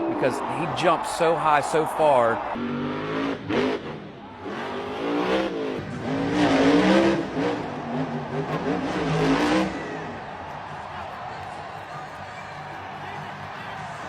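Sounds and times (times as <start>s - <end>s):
monster truck engine revving: 2.5s - 11.3s.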